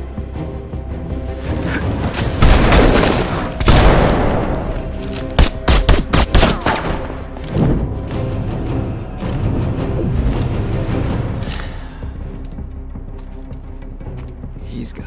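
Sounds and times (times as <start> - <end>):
dramatic score music: 0.0 - 15.0
sharp gunshots: 2.2 - 7.3
gunfire sound effects: 2.4 - 4.8.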